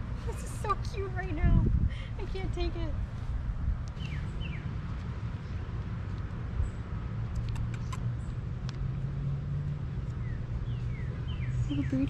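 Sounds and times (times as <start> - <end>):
road traffic rumble: 0.0 - 12.0
vehicle hum: 0.0 - 12.0
small birds chirping: 3.9 - 5.8, 6.5 - 8.8, 9.9 - 12.0.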